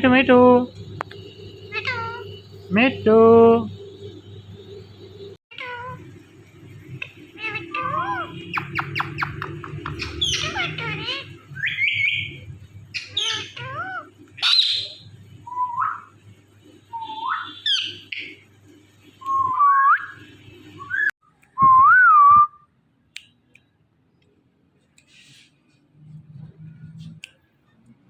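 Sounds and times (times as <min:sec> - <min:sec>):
steady low hum: 0:00.0 - 0:05.4
parrot whistling and squawking: 0:01.7 - 0:02.3, 0:07.0 - 0:16.1, 0:17.0 - 0:18.4.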